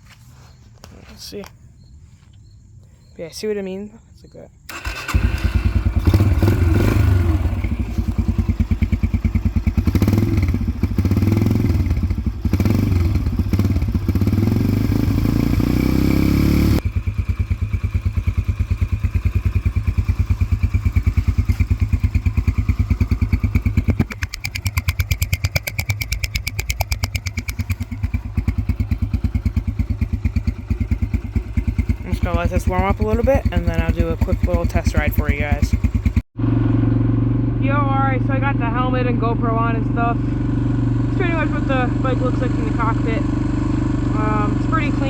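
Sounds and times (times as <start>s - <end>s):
motorcycle engine idling: 4.7s - 36.6s.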